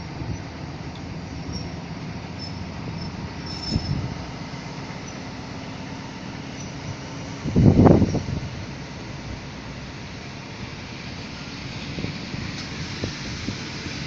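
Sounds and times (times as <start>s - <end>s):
train rumbling on rails: 0.0s - 14.0s
faint wheel squeal: 1.3s - 4.1s, 6.4s - 7.1s.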